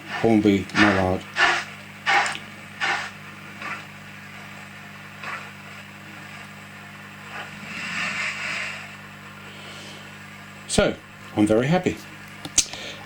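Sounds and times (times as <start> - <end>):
model locomotive steam hisses: 0.0 - 3.2, 7.6 - 10.0
steady low hum: 0.0 - 13.0.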